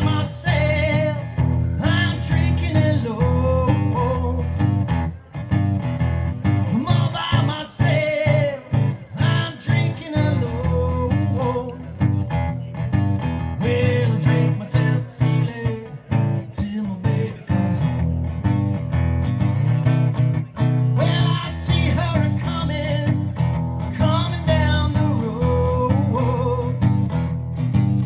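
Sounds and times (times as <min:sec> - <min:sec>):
man singing: 0:00.0 - 0:05.4, 0:06.5 - 0:18.2, 0:20.6 - 0:28.0
strummed acoustic guitar: 0:00.0 - 0:28.0.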